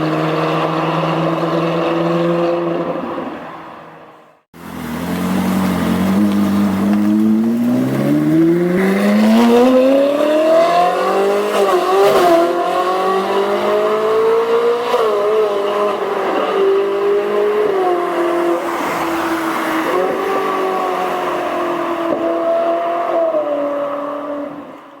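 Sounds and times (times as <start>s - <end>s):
sports car engine accelerating: 4.6s - 18.6s.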